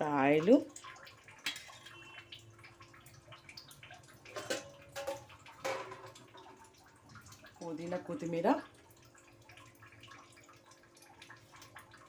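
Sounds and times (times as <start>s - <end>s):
oil dripping: 0.0s - 12.0s
knocks on a pot: 4.4s - 6.2s.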